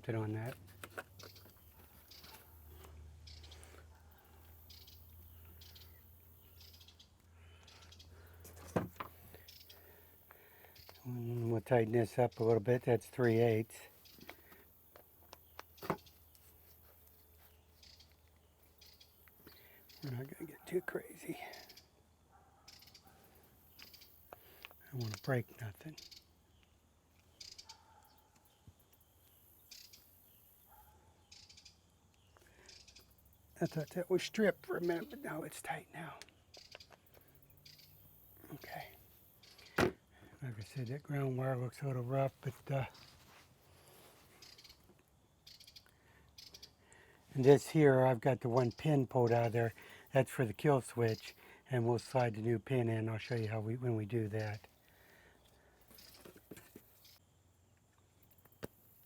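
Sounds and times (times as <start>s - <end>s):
faint bird chirps: 1.1s - 12.6s, 15.3s - 39.8s, 41.8s - 47.4s, 54.2s - 57.3s.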